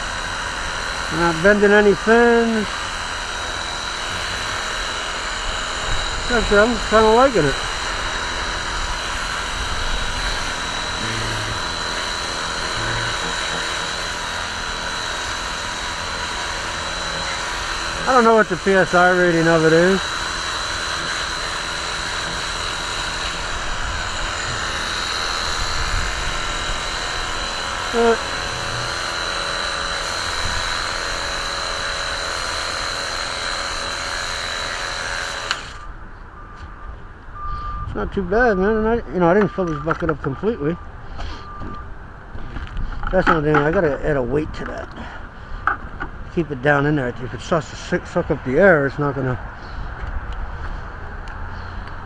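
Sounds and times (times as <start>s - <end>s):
pump motor whine: 0.0s - 37.5s.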